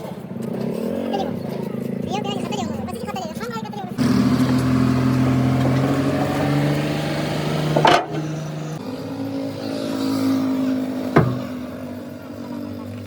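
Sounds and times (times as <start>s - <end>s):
engine running steadily: 0.0s - 13.0s
sharp knocks: 11.1s - 11.7s.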